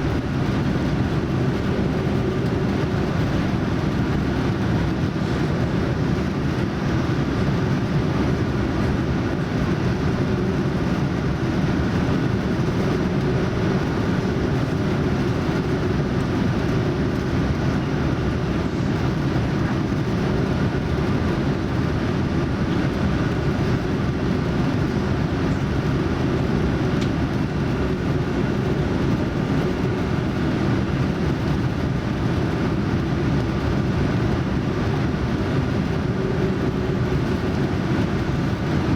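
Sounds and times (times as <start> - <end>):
airliner cabin rumble: 0.0 - 38.9.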